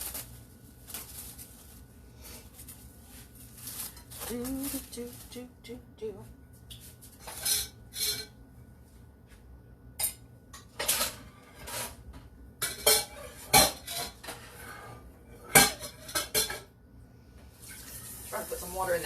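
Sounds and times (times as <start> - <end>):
dishes and cutlery clinking: 7.2 - 8.4, 10.0 - 12.0, 12.6 - 14.6, 15.4 - 16.7.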